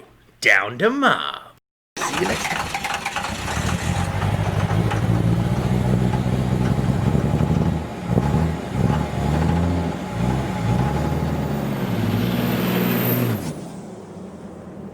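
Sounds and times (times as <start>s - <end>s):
diesel pickup engine revving: 2.0s - 13.8s.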